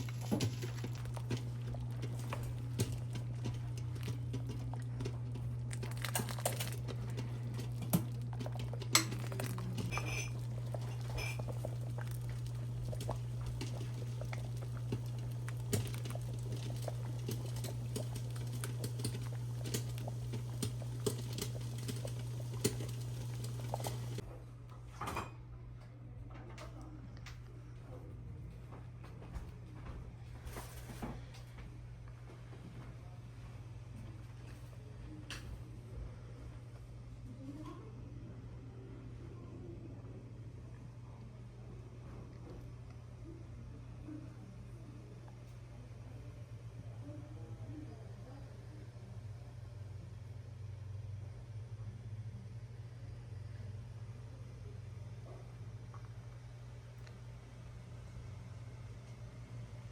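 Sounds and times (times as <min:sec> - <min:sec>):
utensils clinking on pots: 0:00.0 - 0:04.6, 0:05.9 - 0:24.2
steady low hum: 0:00.0 - 0:24.7.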